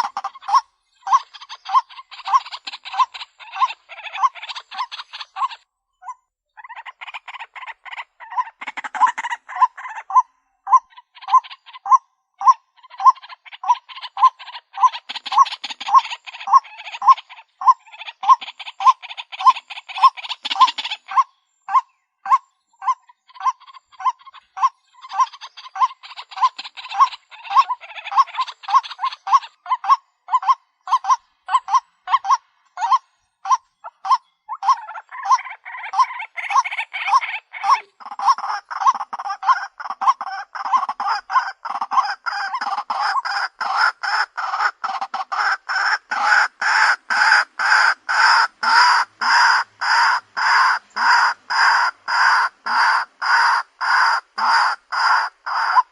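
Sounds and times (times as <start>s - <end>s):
waterhen harsh croaking calls: 0.0s - 5.6s, 6.6s - 55.9s.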